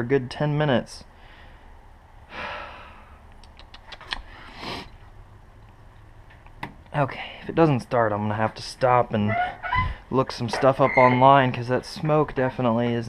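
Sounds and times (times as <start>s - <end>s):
man sighing: 2.3s - 3.2s.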